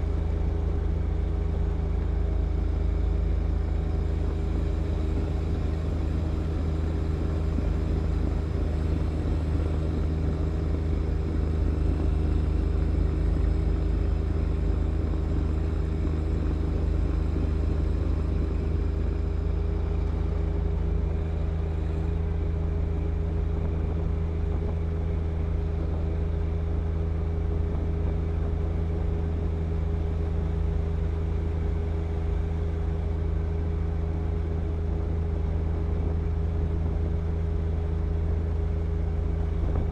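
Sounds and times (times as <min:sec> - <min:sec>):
tractor diesel engine droning: 0:00.0 - 0:39.9
snow blower working: 0:03.9 - 0:20.4.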